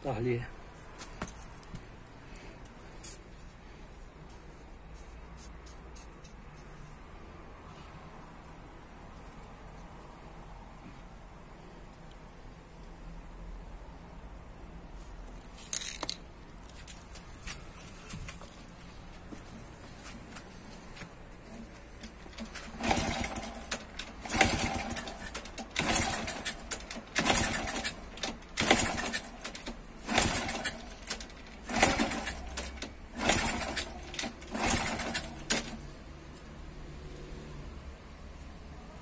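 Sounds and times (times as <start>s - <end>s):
motorcycle engine cranking: 15.6s - 16.2s, 21.5s - 35.9s.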